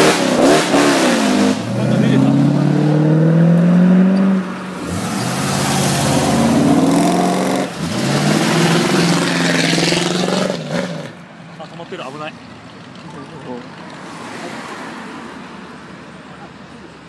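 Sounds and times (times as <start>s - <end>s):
car engines accelerating: 0.0s - 11.2s.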